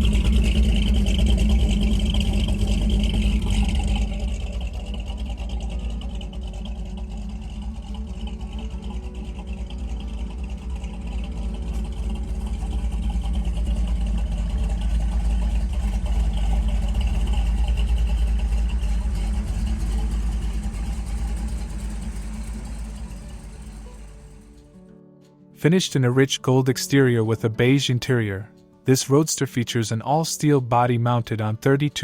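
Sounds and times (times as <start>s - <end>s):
car engine rumbling: 0.0s - 24.8s.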